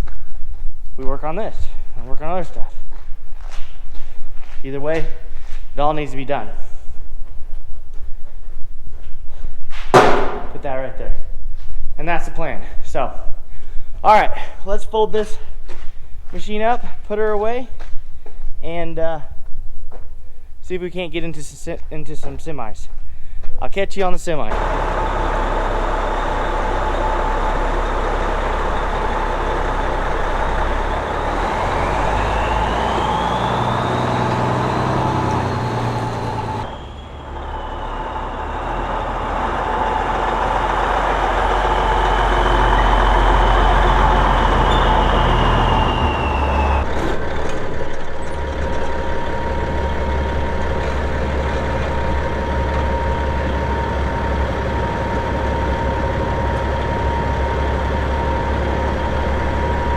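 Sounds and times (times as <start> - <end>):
diesel engine running: 24.5 - 59.9
high whine: 24.5 - 59.9.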